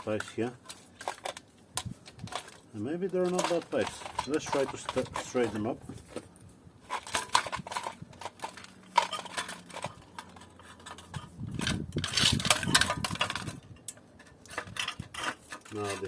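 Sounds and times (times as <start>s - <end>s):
metal clinking and rubbing: 0.0s - 16.0s
metal pipes clicking and knocking: 0.0s - 16.0s.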